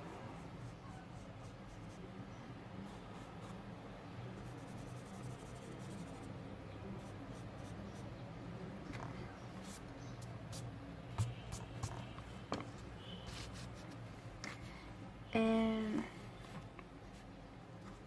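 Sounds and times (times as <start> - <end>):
pencil smudging on paper: 11.2 - 12.1.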